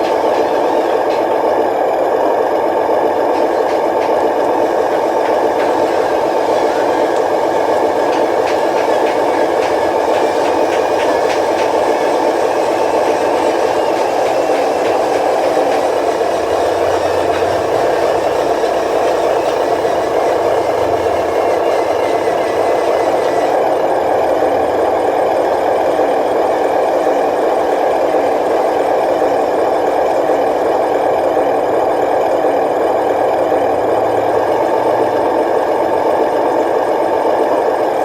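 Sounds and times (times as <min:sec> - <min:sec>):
rattling toy vehicle motor: 0:00.0 - 0:24.0.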